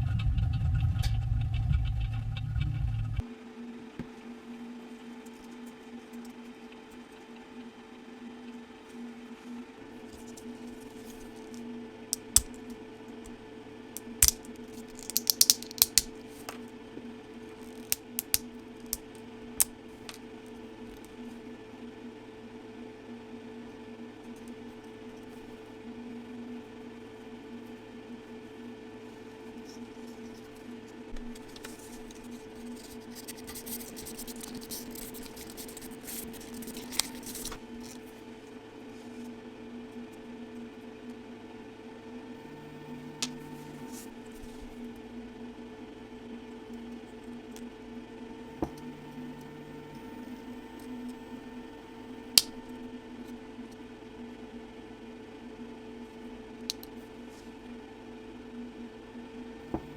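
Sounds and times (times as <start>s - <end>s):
steady machine hum: 0.0s - 59.9s
sharp clicks and snaps: 12.2s - 12.7s, 14.0s - 16.1s, 17.8s - 19.0s
objects being handled: 12.2s - 12.8s, 14.0s - 16.6s, 17.7s - 20.2s, 31.2s - 38.0s.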